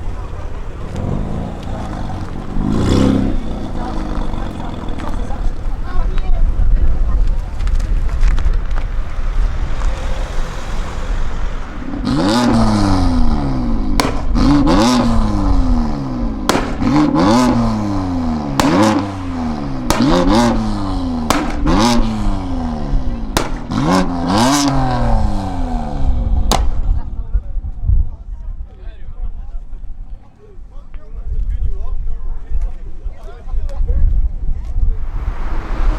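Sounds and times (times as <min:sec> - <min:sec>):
vehicle engine revving in blips: 0:00.0 - 0:05.8, 0:07.6 - 0:26.4
sharp exhaust pops: 0:00.0 - 0:26.9.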